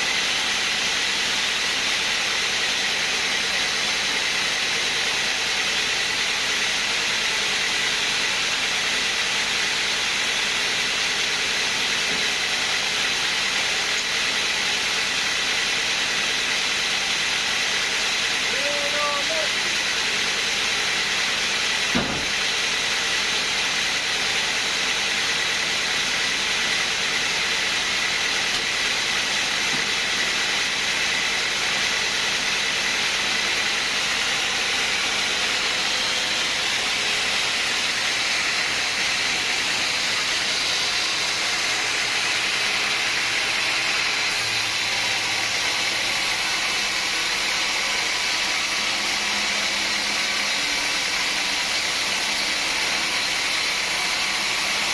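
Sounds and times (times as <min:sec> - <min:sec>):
sawmill machinery running: 0:00.0 - 0:54.9
single knock: 0:22.0 - 0:22.3.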